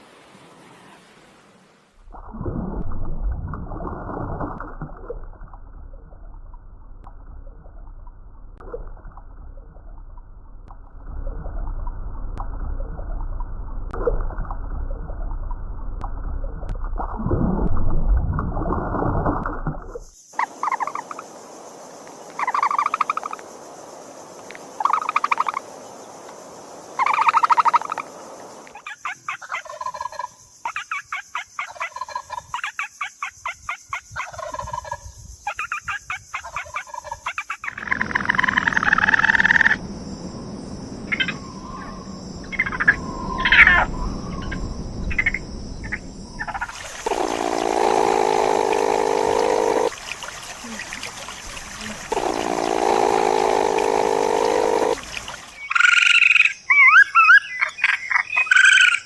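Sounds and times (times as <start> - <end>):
fast pulsed animal calls: 20.4 - 21.3, 24.8 - 25.6, 27.0 - 28.2, 35.9 - 39.8, 41.0 - 57.3
steady low animal call: 37.8 - 55.6
animal calls: 46.5 - 57.4
sharp short animal calls: 46.7 - 55.5.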